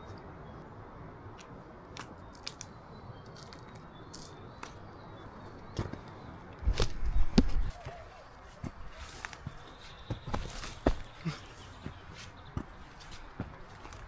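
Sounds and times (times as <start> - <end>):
wind buffeting microphone: 6.2 - 11.2
footsteps crunching on trail: 6.7 - 14.0.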